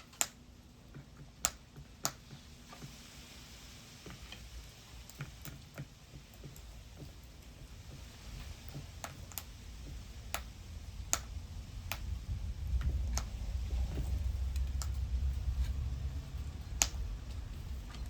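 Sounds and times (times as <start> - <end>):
low rumble: 8.2 - 18.0
sharp ticks or taps: 8.7 - 12.1.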